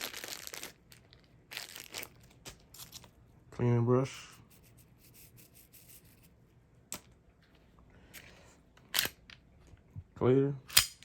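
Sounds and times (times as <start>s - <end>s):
pistol mechanical clicks: 10.7s - 11.0s.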